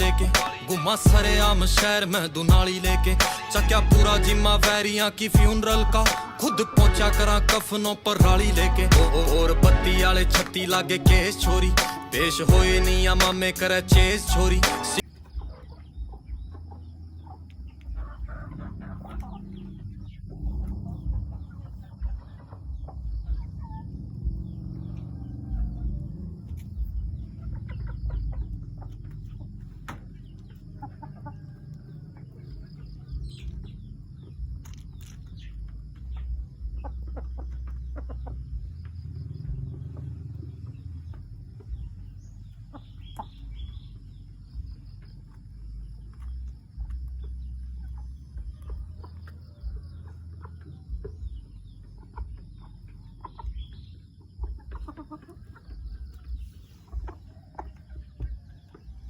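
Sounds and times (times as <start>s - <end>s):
chickens clucking and calling: 0.0s - 59.0s.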